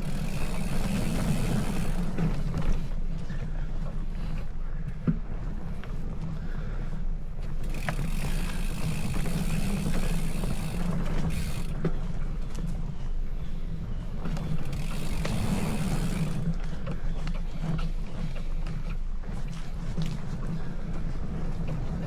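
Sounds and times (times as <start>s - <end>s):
bicycle clicks: 0.0s - 3.4s, 7.4s - 12.8s, 14.2s - 21.8s
bicycle tyre and drivetrain noise: 0.0s - 22.0s.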